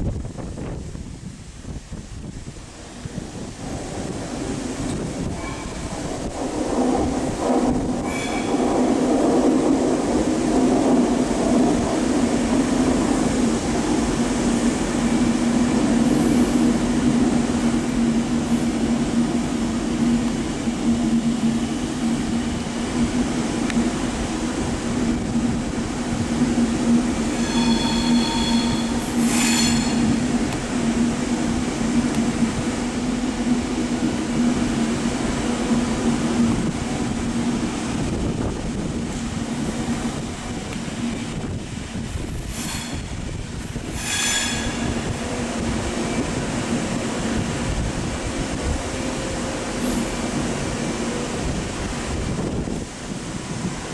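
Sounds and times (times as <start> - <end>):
train running with low hum: 0.0 - 53.9
high-pitched ringing: 27.1 - 30.4.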